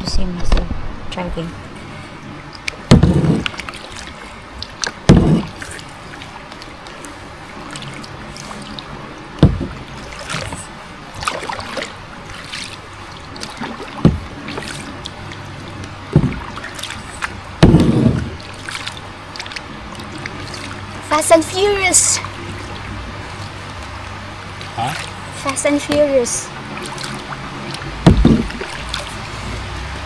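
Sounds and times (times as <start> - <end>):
paddle splashing water: 1.8 - 30.0
paddle knocking against boat: 2.8 - 3.6, 5.0 - 5.7, 9.4 - 10.6, 13.6 - 14.8, 16.1 - 16.9, 17.6 - 18.5, 24.9 - 26.3, 28.0 - 29.1.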